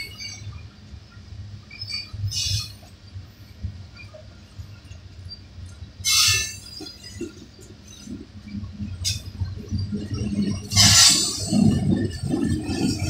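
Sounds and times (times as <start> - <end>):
metallic wheel squeals: 1.7 - 2.8, 6.0 - 7.2, 10.6 - 11.9
freight train rumbling past: 6.0 - 13.0.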